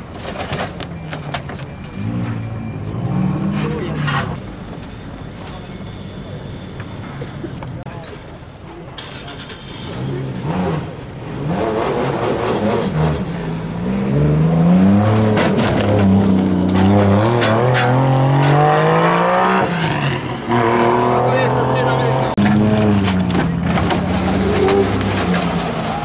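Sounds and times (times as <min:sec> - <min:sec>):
car engine revving: 0:09.0 - 0:26.0.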